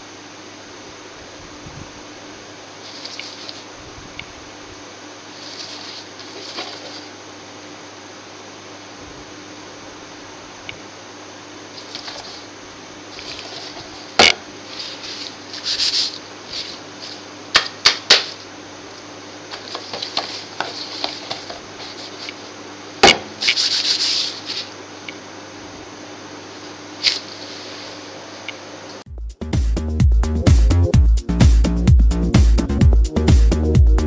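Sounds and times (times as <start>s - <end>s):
low steady hum: 0.0s - 29.1s
cardboard rubbing and sliding: 2.8s - 3.9s, 5.3s - 7.2s, 11.8s - 17.3s, 19.5s - 22.5s, 23.4s - 24.8s.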